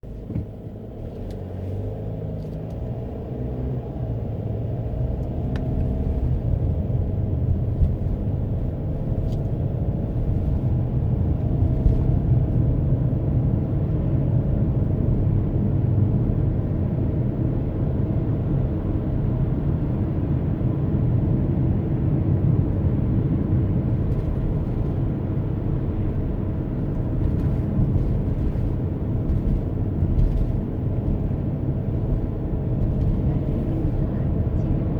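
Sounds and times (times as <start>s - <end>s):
muffled car engine and tyre rumble: 0.0s - 34.9s.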